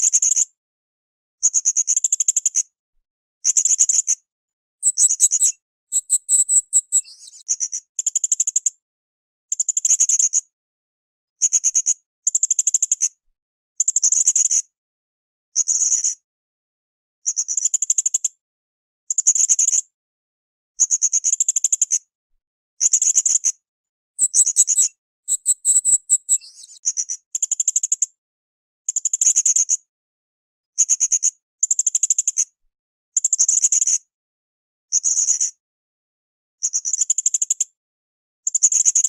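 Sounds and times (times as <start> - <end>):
sharp sliding chirps: 4.8 - 7.1, 24.2 - 26.8
parrot chattering trills: 24.2 - 26.4.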